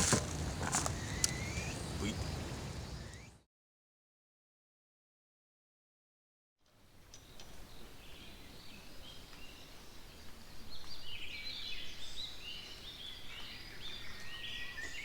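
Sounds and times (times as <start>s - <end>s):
small birds chirping: 0.0s - 3.4s.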